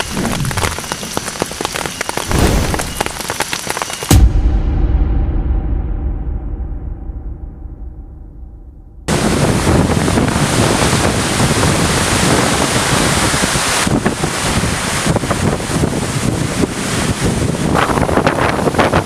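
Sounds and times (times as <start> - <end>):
pouring rain hiss: 0.0 - 4.1, 9.1 - 19.0
wind buffeting microphone: 9.0 - 19.0.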